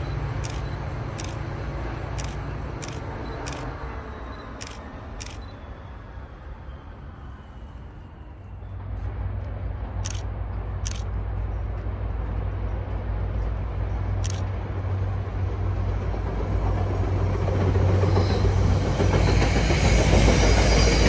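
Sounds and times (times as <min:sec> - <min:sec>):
low rumble of train: 0:00.0 - 0:21.0
sharp clicks: 0:00.4 - 0:01.5, 0:02.1 - 0:03.7, 0:04.6 - 0:05.5, 0:10.0 - 0:11.1, 0:14.2 - 0:14.5.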